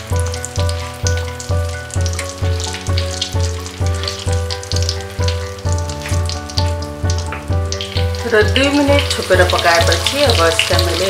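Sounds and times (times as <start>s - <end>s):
vegetables frying in oil: 0.0s - 11.0s.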